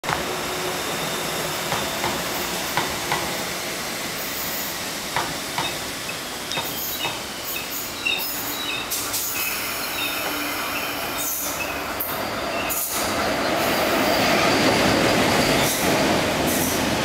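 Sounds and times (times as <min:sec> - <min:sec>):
train rumbling past: 0:00.0 - 0:17.0
wheel squeals: 0:05.6 - 0:11.8.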